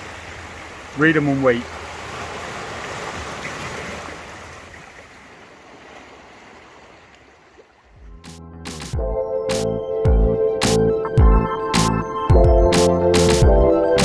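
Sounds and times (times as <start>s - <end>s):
sea waves washing: 0.0s - 8.3s
music: 8.0s - 14.0s.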